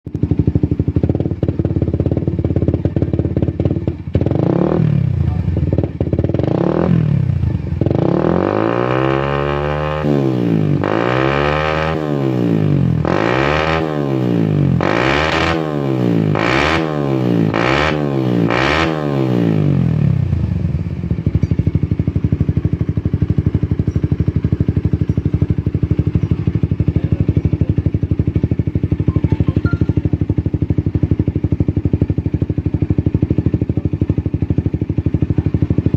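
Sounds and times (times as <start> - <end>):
motorcycle engine idling and revving: 0.1 - 35.9.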